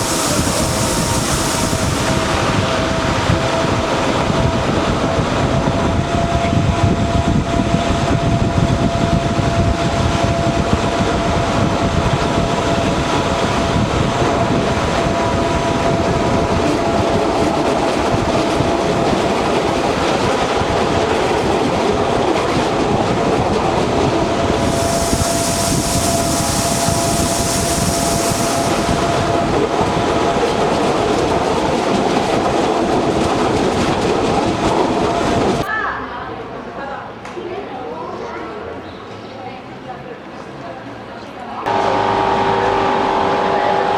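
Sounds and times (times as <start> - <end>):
high hiss: 0.0 - 2.6, 24.6 - 29.3
electric train wheel and rail noise: 0.0 - 35.7, 41.6 - 43.9.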